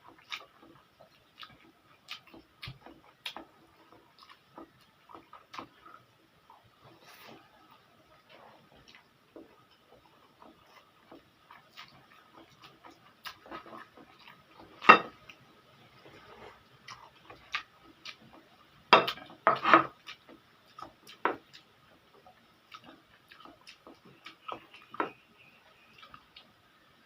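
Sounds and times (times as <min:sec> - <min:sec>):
cutlery clinking on a plate: 0:14.8 - 0:15.2, 0:18.9 - 0:20.0.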